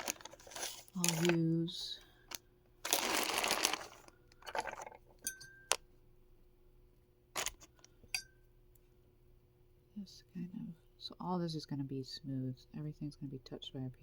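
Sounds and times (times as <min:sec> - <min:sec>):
rustling scrape: 0:00.0 - 0:01.4
small tools clinking and tapping: 0:04.4 - 0:05.8.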